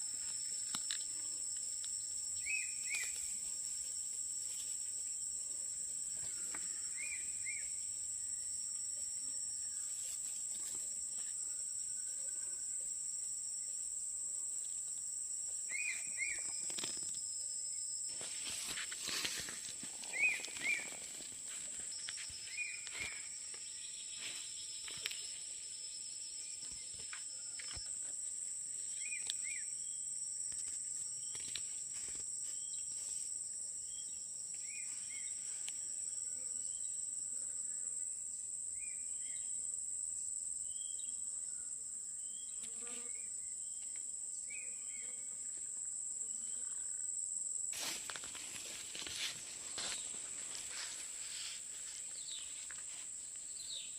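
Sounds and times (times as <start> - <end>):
faint chirps: 0.0 - 13.9, 15.6 - 31.7
insects droning: 0.0 - 53.9.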